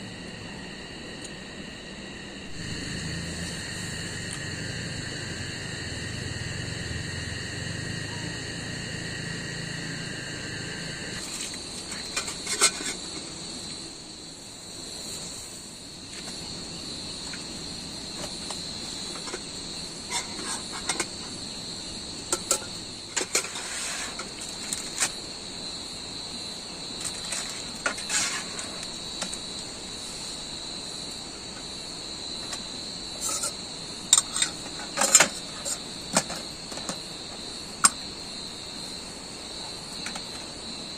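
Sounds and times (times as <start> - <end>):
low hum: 0.0 - 11.3
insects trilling high: 0.0 - 40.9
lower insect trill: 0.0 - 40.9.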